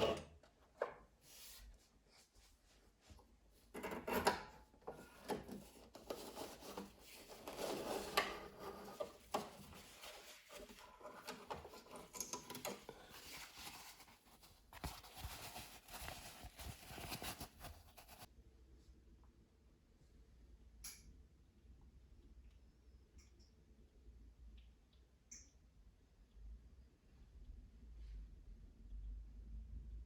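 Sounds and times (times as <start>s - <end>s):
hands rubbing and scratching fabric: 13.0s - 18.3s.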